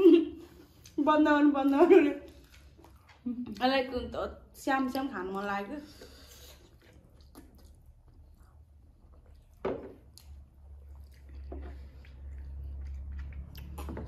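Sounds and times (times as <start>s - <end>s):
wet chewing mouth sounds: 2.3s - 3.8s, 4.8s - 14.0s.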